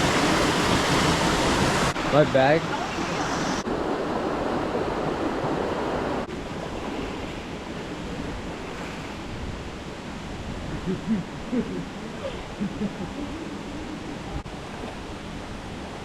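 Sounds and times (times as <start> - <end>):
waterfall rushing: 0.0 - 6.3.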